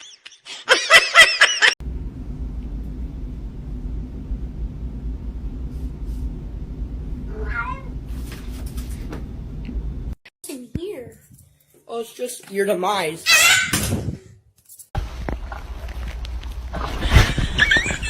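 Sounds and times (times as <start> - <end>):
low steady rumble: 1.8 - 10.2
cat meowing loudly: 7.3 - 7.9, 13.3 - 13.8.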